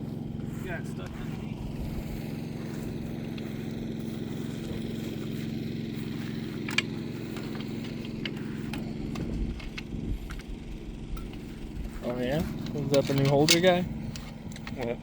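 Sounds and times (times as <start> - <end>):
motorbike engine idling: 0.0 - 15.0
sharp clicks: 6.5 - 11.5.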